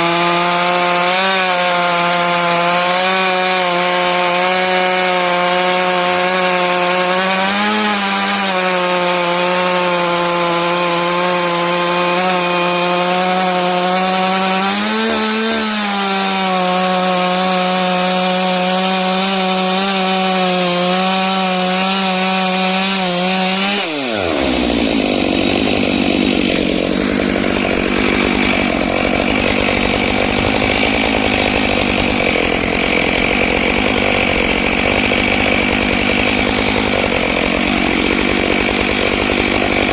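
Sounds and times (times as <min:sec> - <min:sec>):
chainsaw ripping through log: 0:00.0 - 0:39.9.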